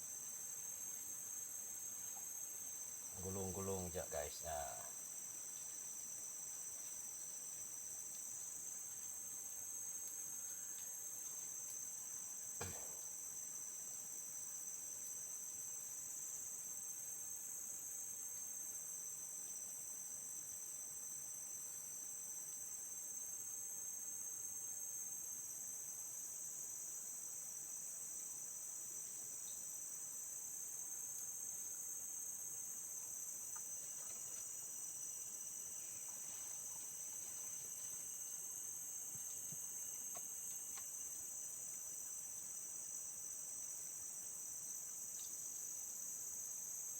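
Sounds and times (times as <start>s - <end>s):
high-pitched insect chorus: 0.0s - 46.9s
soft knock: 12.6s - 13.0s.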